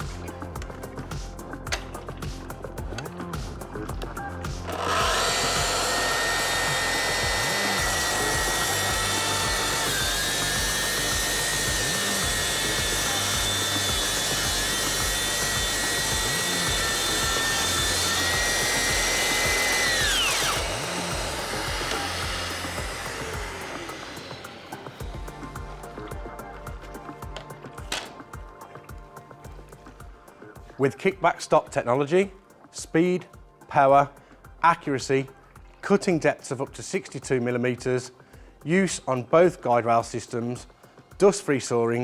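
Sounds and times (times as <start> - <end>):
track saw motor whining: 4.6 - 28.5.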